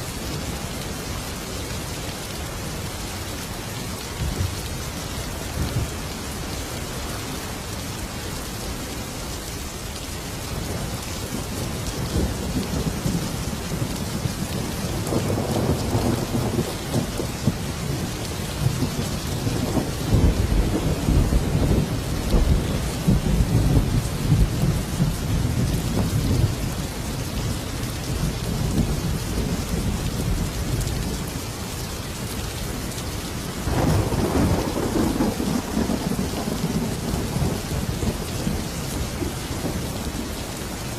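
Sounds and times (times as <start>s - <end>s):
heavy rain: 0.0s - 40.9s
rolling thunder: 10.6s - 27.2s, 33.7s - 40.2s.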